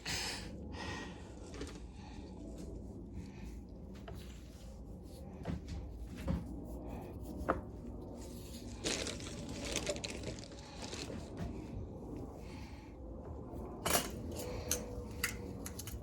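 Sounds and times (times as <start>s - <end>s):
rustling scrape: 4.2s - 11.7s
light knocks of small parts: 13.8s - 16.0s.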